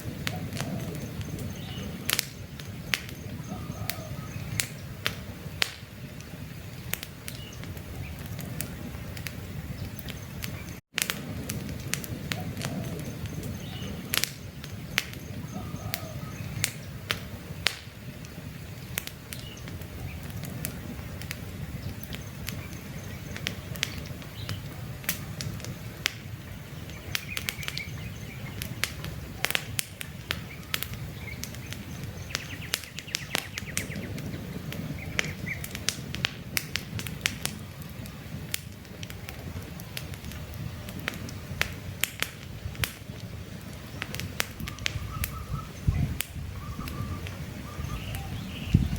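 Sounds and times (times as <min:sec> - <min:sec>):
campfire crackling and popping: 0:00.0 - 0:48.9
faint bird chirps: 0:00.3 - 0:05.0, 0:12.4 - 0:16.9, 0:44.6 - 0:48.9.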